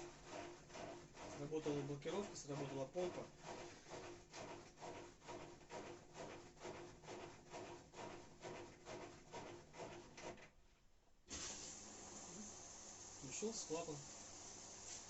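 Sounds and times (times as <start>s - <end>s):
washing machine drain pump pulsing: 0.0s - 10.6s, 11.3s - 15.0s
water hissing into machine: 11.3s - 15.0s.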